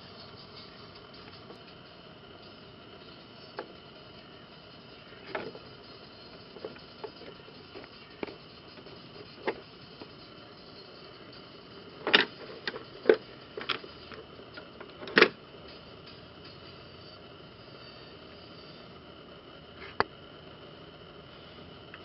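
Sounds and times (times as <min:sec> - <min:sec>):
tools clicking and knocking: 0:12.0 - 0:13.8.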